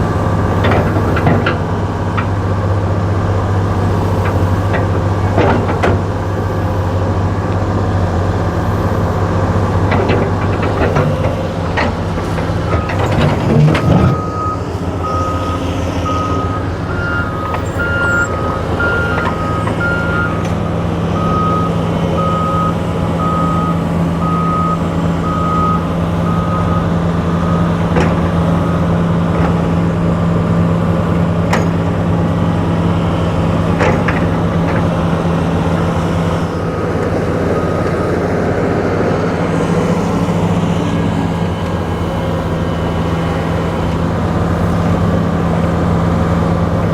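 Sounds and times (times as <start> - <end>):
heavy machinery diesel engine: 0.0 - 46.9
backup alarm beeping: 13.8 - 20.4.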